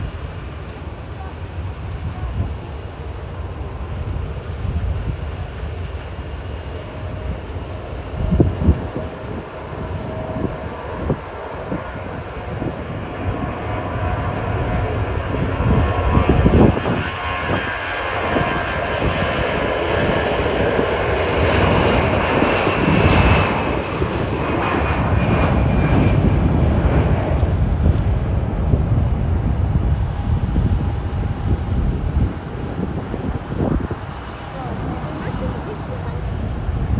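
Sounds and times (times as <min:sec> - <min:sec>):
jet engine rumble: 0:00.0 - 0:36.9.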